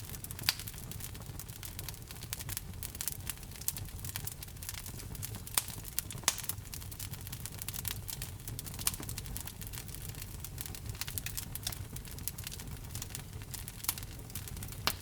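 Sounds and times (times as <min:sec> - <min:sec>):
fire crackling: 0:00.0 - 0:15.0
loud fire pops: 0:00.0 - 0:15.0.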